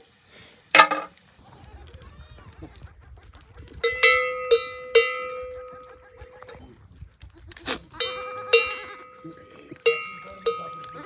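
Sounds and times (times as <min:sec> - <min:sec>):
metal livestock bell clanking: 0:03.8 - 0:06.6, 0:08.0 - 0:11.0.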